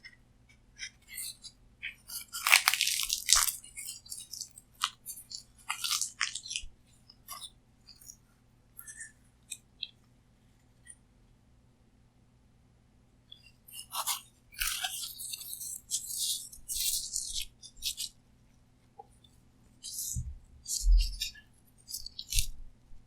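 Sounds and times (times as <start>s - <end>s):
chewing with crunches: 1.0s - 8.2s, 13.8s - 18.1s
crunching bite: 2.1s - 6.6s.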